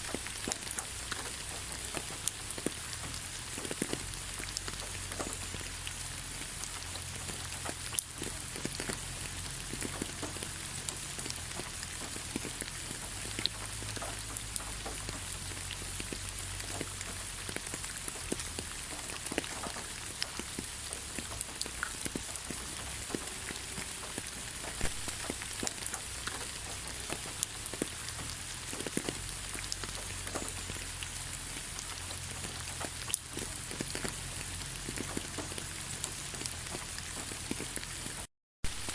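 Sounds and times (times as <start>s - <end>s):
raindrops tapping: 0.0s - 38.9s
steady rain: 0.0s - 38.9s.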